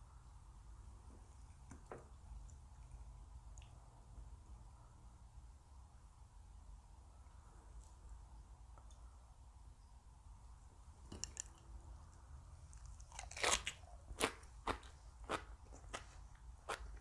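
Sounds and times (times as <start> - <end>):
chewing crunchy raw vegetables: 12.7 - 17.0.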